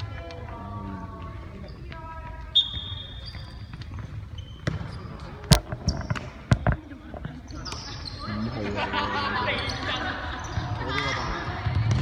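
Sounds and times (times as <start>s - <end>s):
sneakers squeaking on court floor: 0.0s - 12.0s
ball thumping: 1.2s - 7.9s.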